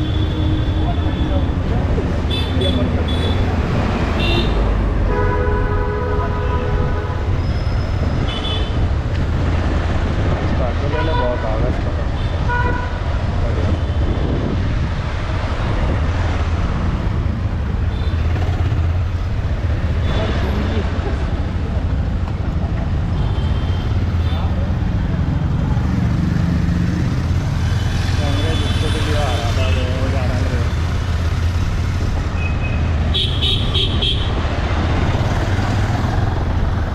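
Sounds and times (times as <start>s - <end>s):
wind rumble on microphone: 6.7s - 17.8s
motorcycle running: 14.7s - 21.3s.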